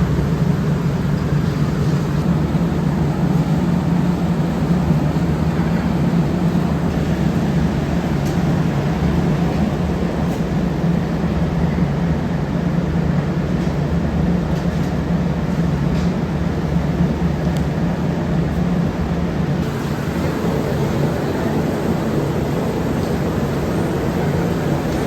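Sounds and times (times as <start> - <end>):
workshop machinery droning: 19.6 - 25.0.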